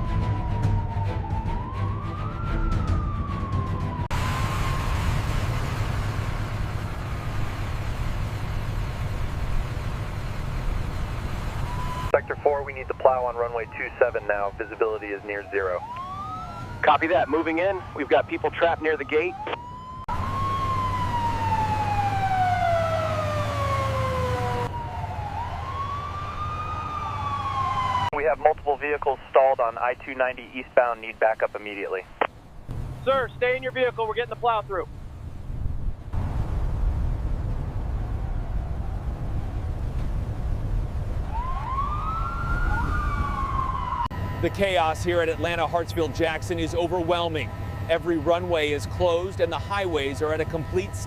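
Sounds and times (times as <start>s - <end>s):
siren wailing: 0.0s - 5.5s, 11.5s - 32.0s, 41.2s - 51.0s
low engine hum: 4.0s - 14.8s
low rumble: 32.1s - 44.0s.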